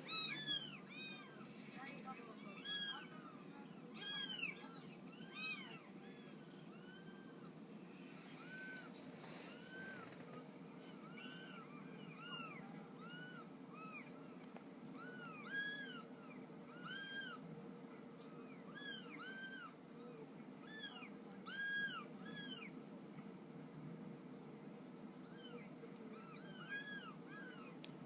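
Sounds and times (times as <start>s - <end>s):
high thin mewing calls: 0.0s - 17.4s, 25.3s - 27.8s.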